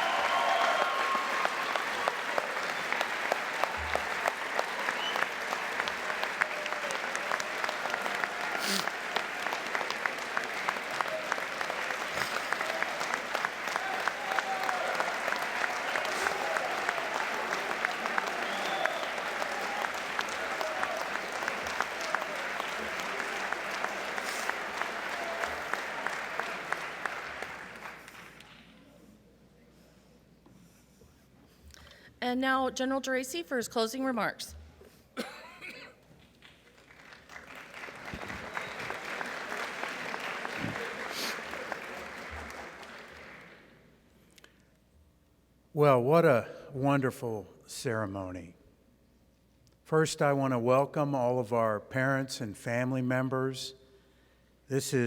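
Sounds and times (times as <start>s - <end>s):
audience applauding: 0.0s - 28.7s, 36.2s - 43.8s.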